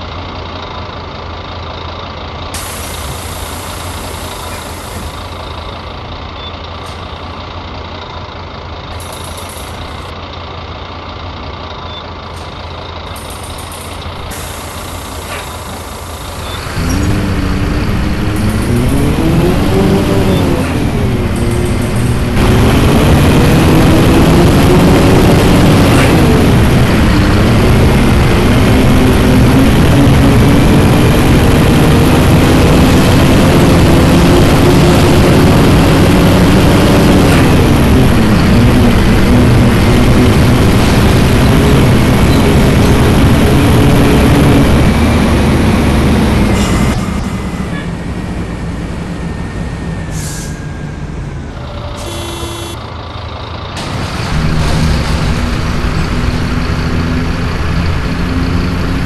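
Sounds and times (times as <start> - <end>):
bus diesel engine pulling hard: 0.0 - 59.0.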